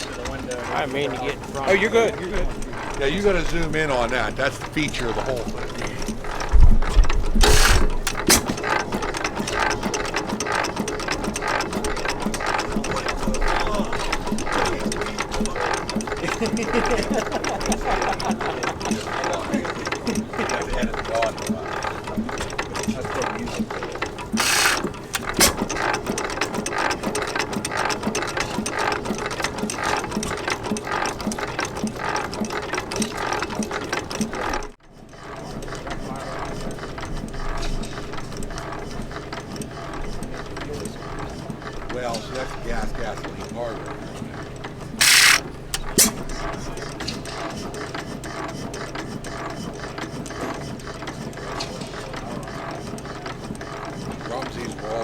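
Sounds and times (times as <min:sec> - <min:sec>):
hit-and-miss engine clattering: 0:00.0 - 0:28.4
engine valve gear clicking: 0:02.5 - 0:15.0, 0:24.2 - 0:26.1, 0:45.0 - 0:46.3.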